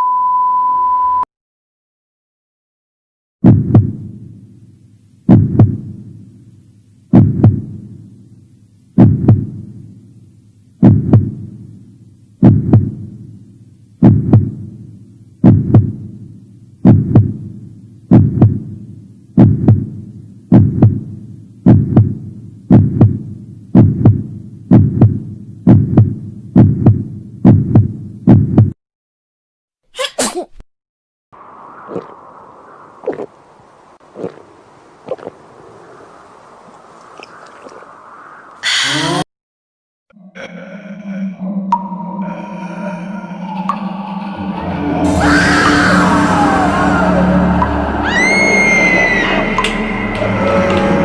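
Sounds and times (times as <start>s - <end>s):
deep booming thuds: 3.4s - 4.1s, 5.3s - 5.9s, 7.1s - 7.8s, 9.0s - 9.6s, 10.8s - 11.4s, 12.4s - 13.0s, 14.0s - 14.7s, 15.4s - 16.0s, 16.8s - 17.4s, 18.1s - 18.7s, 19.4s - 19.9s, 20.5s - 28.8s.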